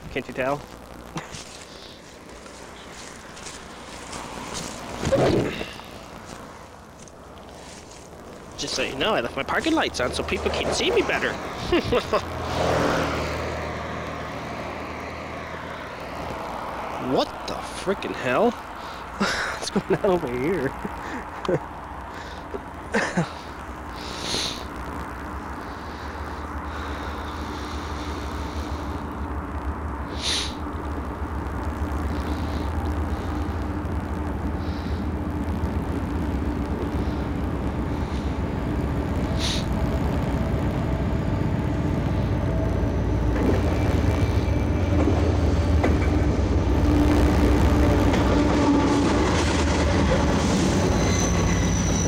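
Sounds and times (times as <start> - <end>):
freight train cars rumbling: 0.0 - 52.0
high wheel squeal: 50.1 - 52.0.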